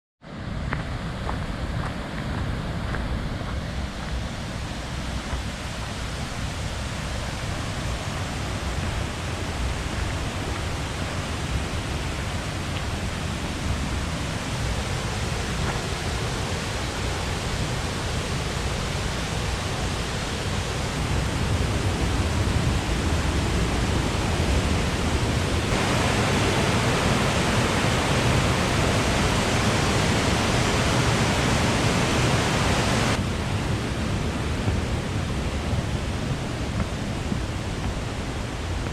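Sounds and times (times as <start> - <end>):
waterfall rushing: 3.6 - 38.9.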